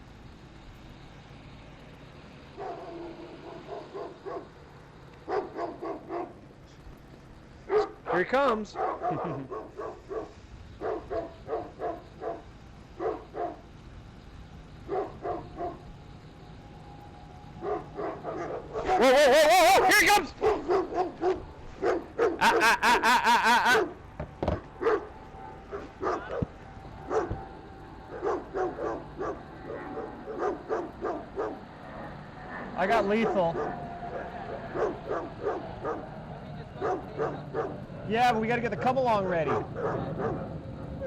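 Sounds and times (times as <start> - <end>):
dog barking: 2.5 - 4.6, 5.2 - 6.4, 7.6 - 13.6, 14.8 - 15.9, 17.6 - 19.1, 19.8 - 23.9, 24.5 - 37.9, 39.3 - 40.5.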